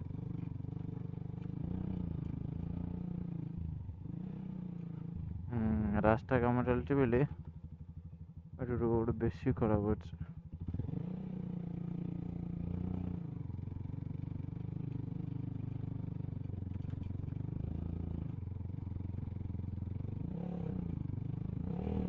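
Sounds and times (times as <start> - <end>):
motorcycle engine revving: 10.2 - 22.0.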